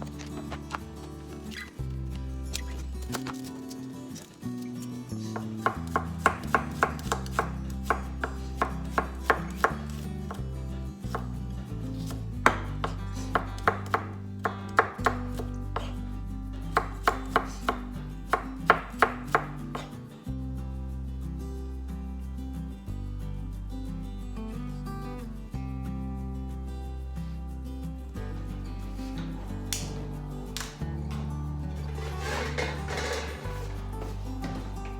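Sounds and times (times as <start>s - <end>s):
background music: 0.0s - 34.9s
knife chopping on cutting board: 5.4s - 10.0s, 12.0s - 16.0s, 16.7s - 19.9s.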